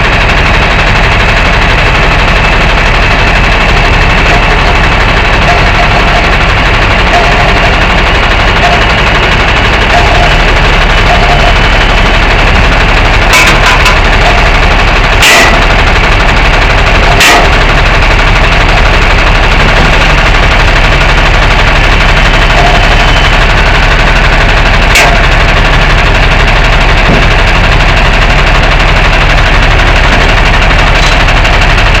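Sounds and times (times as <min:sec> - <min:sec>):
truck engine droning: 0:00.0 - 0:32.0
sharp clunks: 0:13.3 - 0:14.5, 0:24.9 - 0:25.3, 0:27.0 - 0:27.5.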